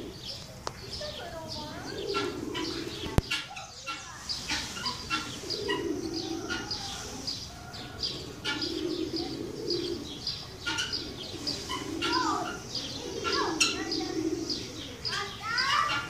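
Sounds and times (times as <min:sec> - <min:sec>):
low bird calls: 0:00.0 - 0:16.0
small birds chirping: 0:00.0 - 0:16.0.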